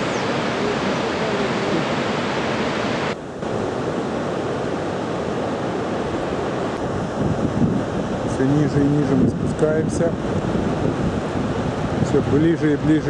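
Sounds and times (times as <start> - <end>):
rush of falling water: 0.0 - 13.0.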